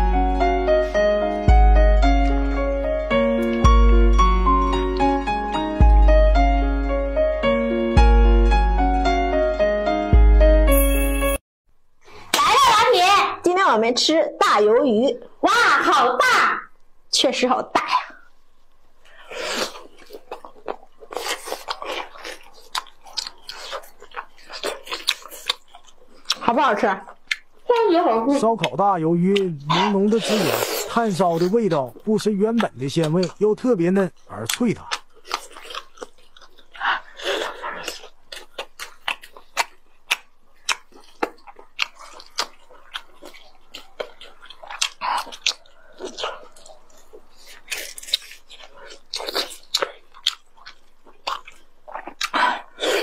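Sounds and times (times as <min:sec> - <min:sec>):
biting and chewing: 0:19.4 - 0:27.9, 0:34.3 - 0:53.0.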